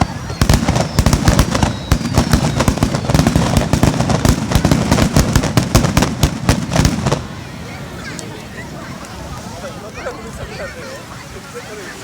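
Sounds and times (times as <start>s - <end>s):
fireworks bangs and crackling pops: 0.0s - 8.3s.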